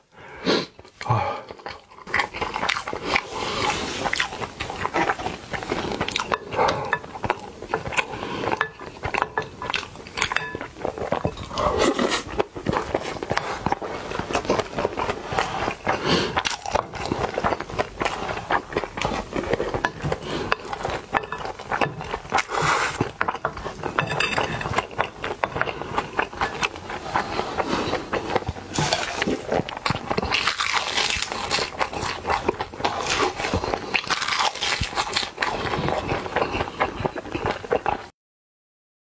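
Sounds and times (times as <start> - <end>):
crackly chewing of rice: 0.6 - 38.1
wooden spoon scraping glass bowl: 19.2 - 30.4.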